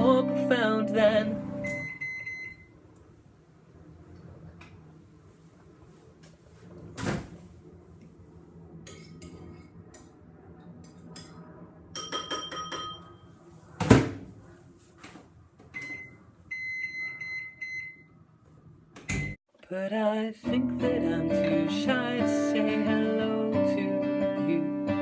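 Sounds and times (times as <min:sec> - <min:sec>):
microwave oven humming: 0:00.0 - 0:05.3.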